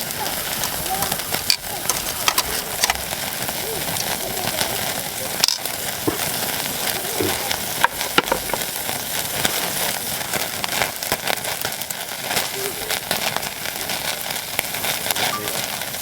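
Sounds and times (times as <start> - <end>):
steak sizzling with fat popping: 0.0 - 16.0.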